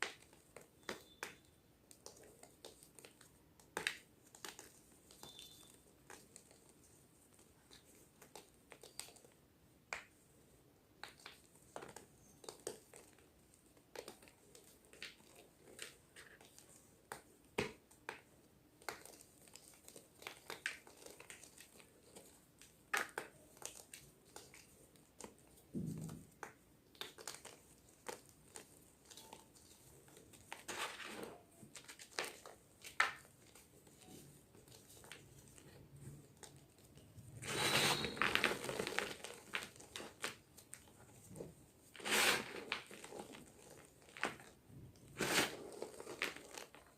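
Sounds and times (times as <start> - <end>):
chalk crunching and crackling: 26.4 - 46.9.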